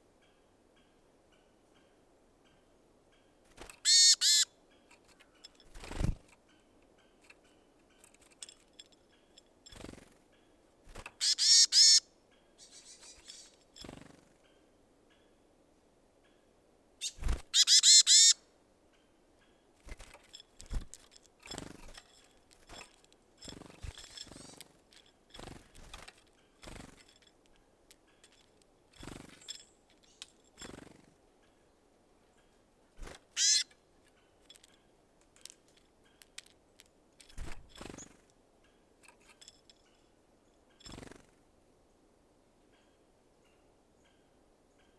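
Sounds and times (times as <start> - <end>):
birds tapping at seeds: 3.5 - 12.0, 12.6 - 14.2, 17.0 - 18.4, 19.8 - 31.0, 33.0 - 38.2, 40.8 - 41.3
harsh bird call: 3.9 - 4.5, 11.2 - 12.0.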